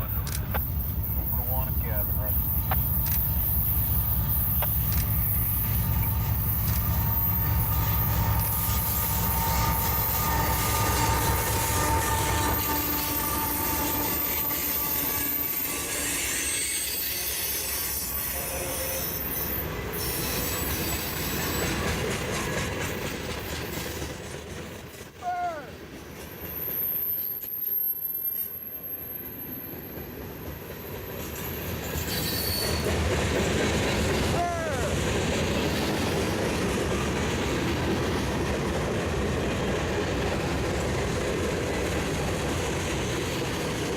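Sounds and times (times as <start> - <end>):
freight train cars clattering: 0.0 - 16.9, 18.5 - 26.8
steel wheels squealing on rail: 0.0 - 38.6.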